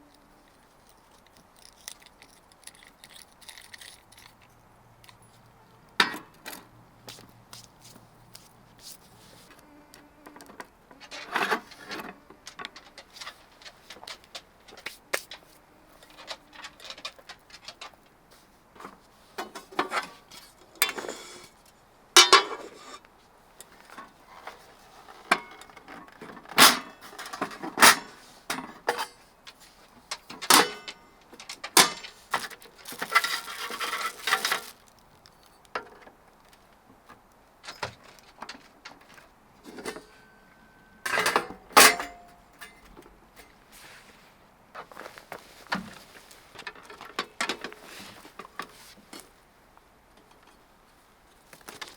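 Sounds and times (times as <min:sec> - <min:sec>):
camp gear knocking and rattling: 0:10.4 - 0:21.6, 0:22.2 - 0:23.0, 0:23.6 - 0:43.6, 0:44.7 - 0:49.3, 0:51.4 - 0:51.9.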